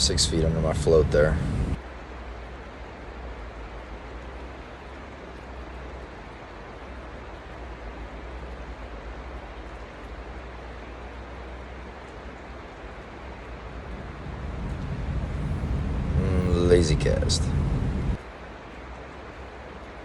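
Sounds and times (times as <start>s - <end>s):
low rumble: 0.0s - 1.8s, 12.6s - 19.1s
stream water rushing: 1.8s - 20.0s.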